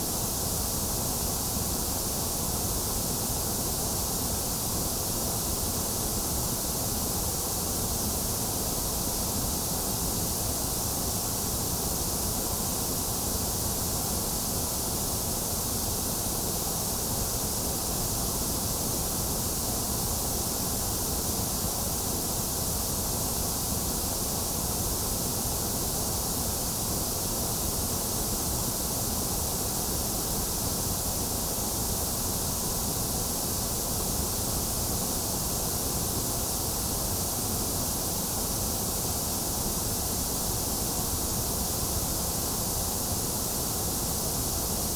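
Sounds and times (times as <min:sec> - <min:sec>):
steady white noise hiss: 0:00.0 - 0:44.9.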